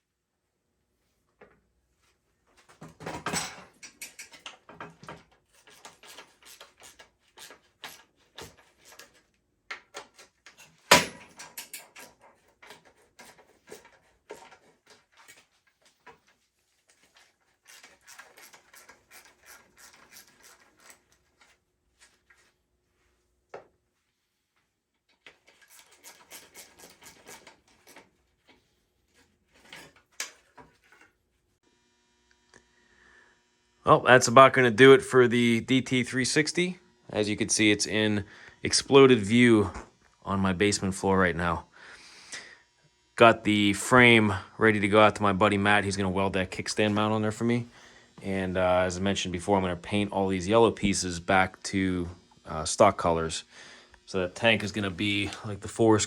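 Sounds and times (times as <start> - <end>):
hand tools clinking on metal parts: 3.1 - 16.2, 16.9 - 21.6, 25.3 - 28.1
dense small clicking and rubbing: 5.3 - 10.8, 11.6 - 22.4, 25.1 - 31.2.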